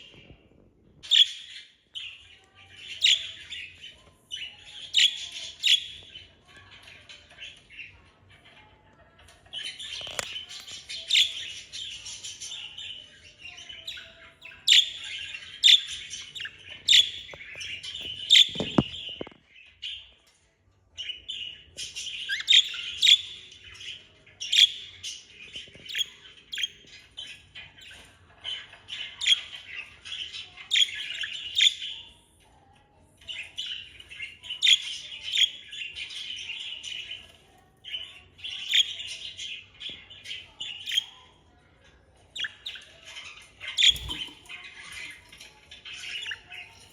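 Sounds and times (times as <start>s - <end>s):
budgerigars warbling and chattering: 9.5s - 20.0s, 21.0s - 32.2s, 33.3s - 41.2s, 42.3s - 46.9s.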